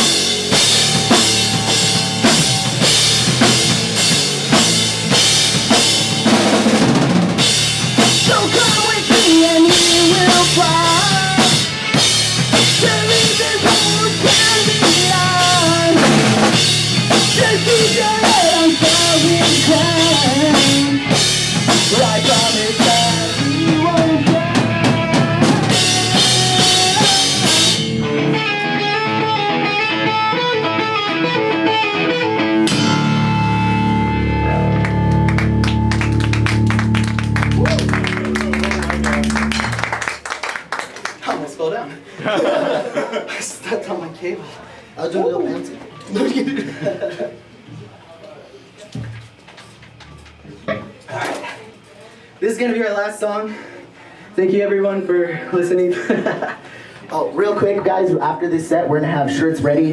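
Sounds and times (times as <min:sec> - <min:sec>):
ringing guitar chords: 0:00.0 - 0:06.6, 0:16.5 - 0:40.0
drum kit with cymbal crashes: 0:00.0 - 0:28.4, 0:32.6 - 0:40.0
pop punk band playing live: 0:00.0 - 0:40.3.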